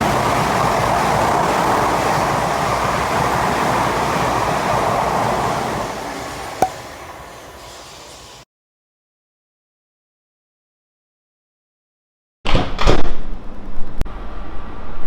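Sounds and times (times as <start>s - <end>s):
train rushing: 0.0s - 8.4s.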